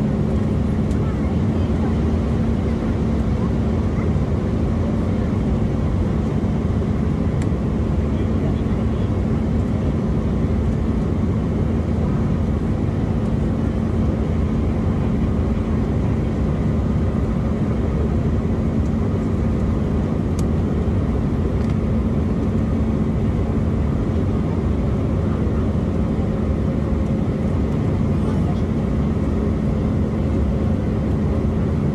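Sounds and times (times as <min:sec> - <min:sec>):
jet engines roaring: 0:00.0 - 0:09.7.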